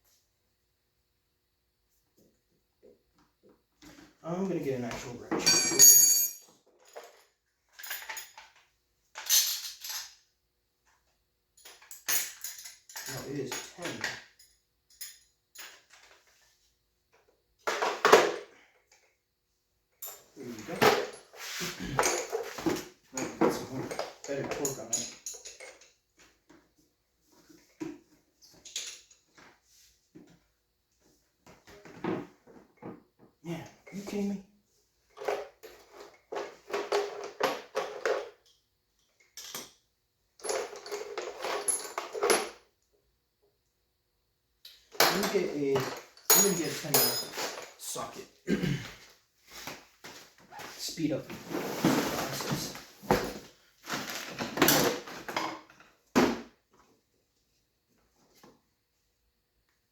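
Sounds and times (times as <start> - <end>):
wrench clinking on bolt: 5.5 - 6.4, 46.2 - 47.4.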